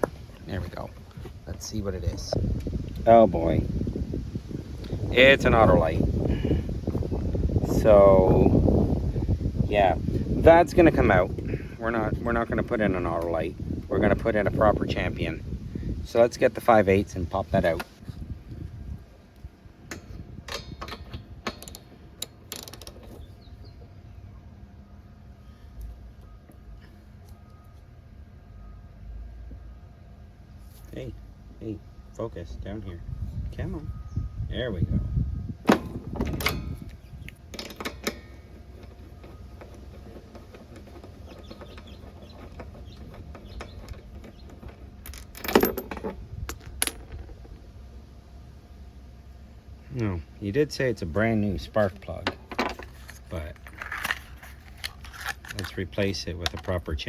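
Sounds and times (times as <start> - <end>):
metal parts clinking: 19.9 - 23.3, 35.9 - 47.5, 51.7 - 56.9
rattling clatter: 35.6 - 47.6, 51.9 - 55.8.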